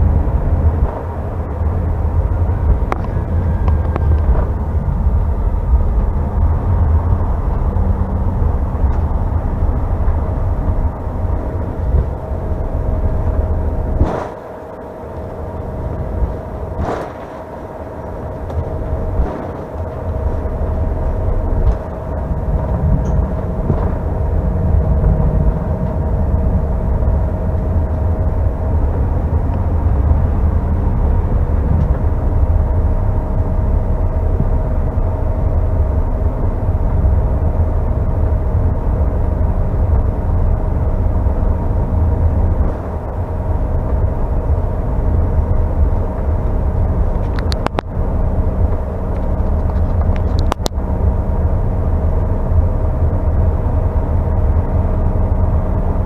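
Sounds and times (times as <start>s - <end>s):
airliner cabin engine hum: 0.0s - 56.0s
low rumble: 0.0s - 56.0s.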